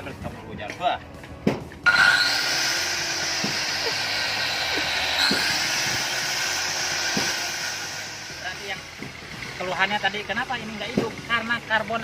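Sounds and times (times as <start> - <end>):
angle grinder motor whining: 1.8 - 10.8.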